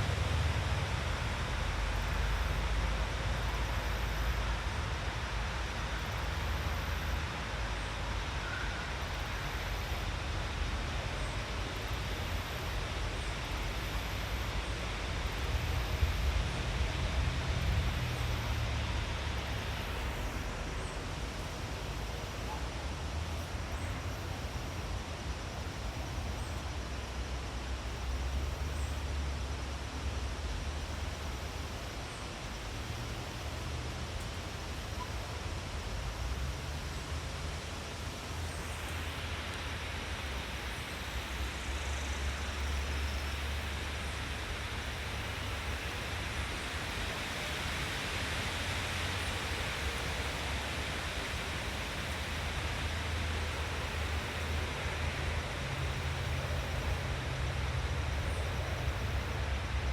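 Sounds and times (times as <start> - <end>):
steady rushing noise: 0.0 - 59.9.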